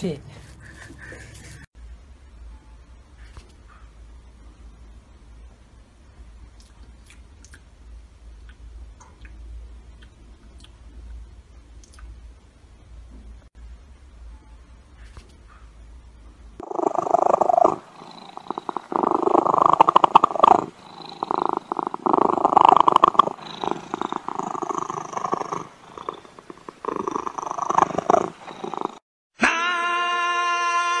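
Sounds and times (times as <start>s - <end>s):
cat purring: 16.6s - 29.0s.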